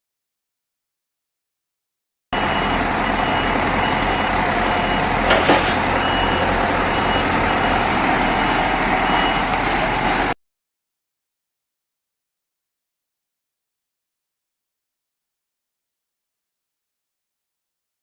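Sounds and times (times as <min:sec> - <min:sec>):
reversing beeper: 0:02.4 - 0:10.4.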